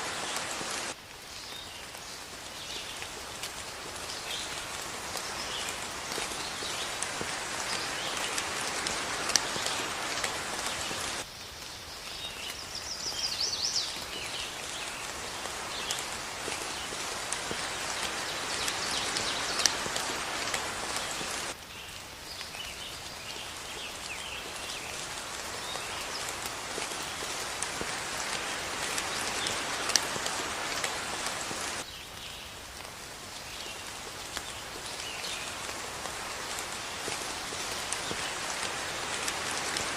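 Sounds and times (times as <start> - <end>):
raindrop splats: 0.0 - 12.6, 13.8 - 39.9
steady rain: 0.0 - 39.9
birds chirping: 12.1 - 21.6.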